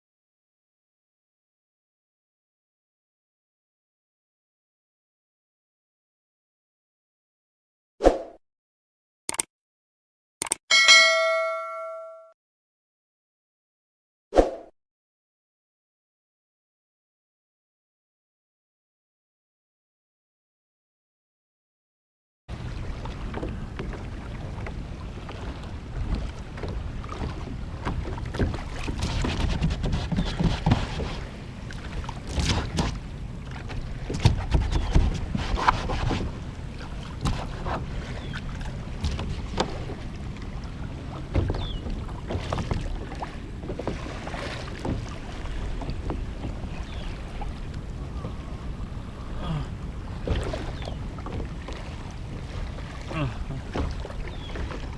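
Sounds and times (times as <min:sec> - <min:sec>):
water splashing against hull: 0:22.5 - 0:54.9.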